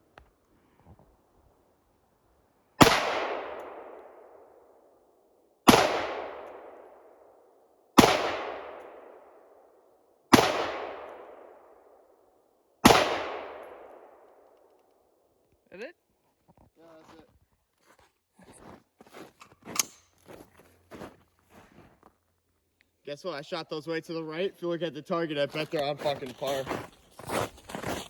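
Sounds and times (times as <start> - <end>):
rifle shots with echo: 2.8 - 5.0, 5.6 - 7.4, 8.0 - 12.2, 12.8 - 14.5.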